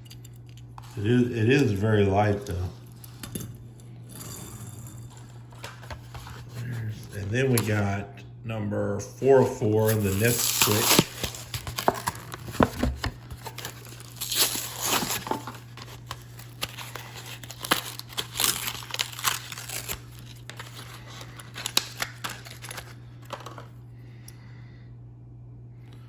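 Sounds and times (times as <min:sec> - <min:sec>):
steady low hum: 0:00.0 - 0:26.0
cardboard tearing: 0:09.8 - 0:23.0
plastic blister crinkling: 0:09.8 - 0:23.7.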